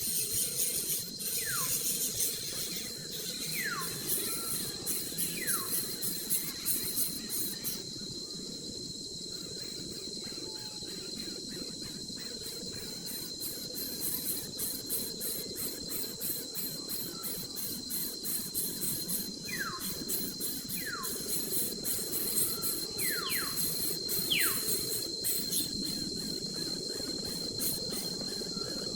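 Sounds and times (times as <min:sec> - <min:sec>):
insects chirping: 0:00.0 - 0:28.9
bird whistled calls: 0:02.7 - 0:05.8, 0:22.4 - 0:24.8.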